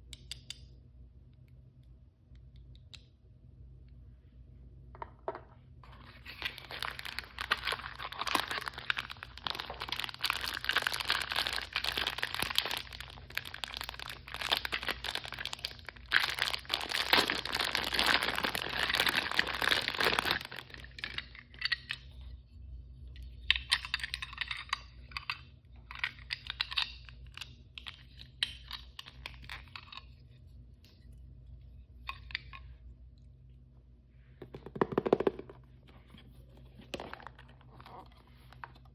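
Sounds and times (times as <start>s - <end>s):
packaging crinkling and tearing: 5.9s - 21.7s, 36.8s - 38.8s.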